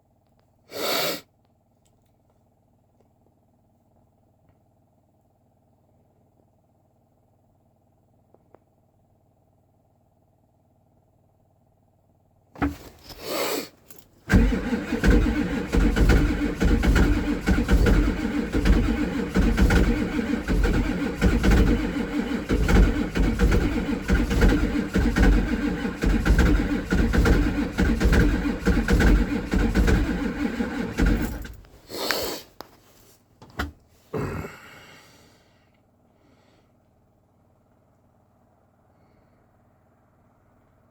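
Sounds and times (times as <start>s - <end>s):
diesel engine cranking and running: 12.6s - 31.8s.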